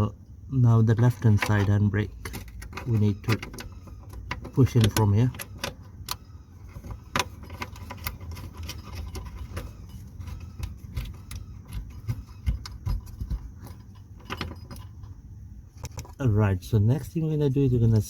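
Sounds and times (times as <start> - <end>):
metallic clicks and rattles: 1.0 - 15.2.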